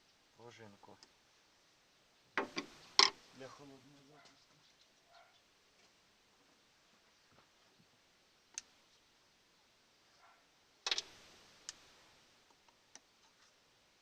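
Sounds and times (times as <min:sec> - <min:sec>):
small metal parts clicking: 0:10.8 - 0:11.1.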